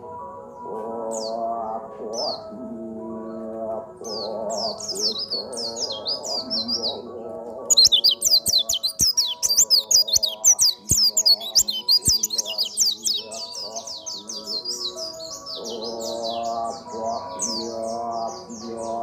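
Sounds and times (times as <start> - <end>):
bird chattering song: 3.3 - 19.0
background music: 7.8 - 19.0.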